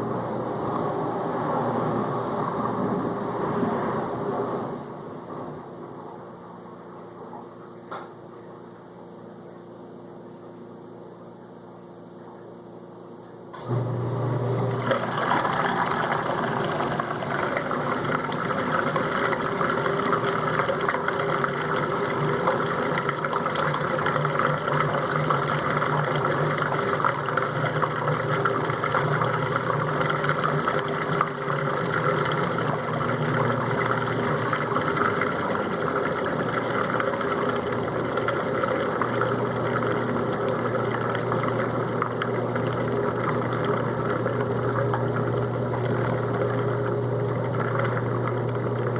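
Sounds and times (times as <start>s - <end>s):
dishwasher drain pump humming: 13.2s - 48.9s
water rushing and gurgling: 14.7s - 48.9s.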